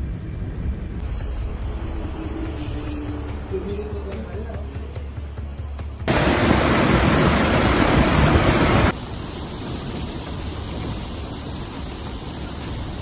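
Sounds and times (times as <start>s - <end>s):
loud rushing noise: 6.1s - 9.0s
steady hiss: 6.1s - 13.0s.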